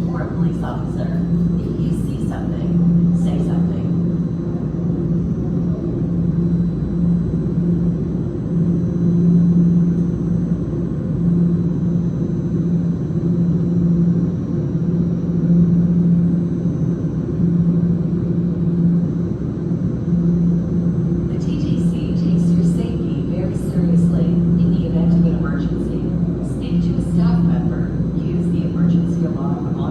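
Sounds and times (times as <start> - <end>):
subway train rumble: 0.0 - 29.9.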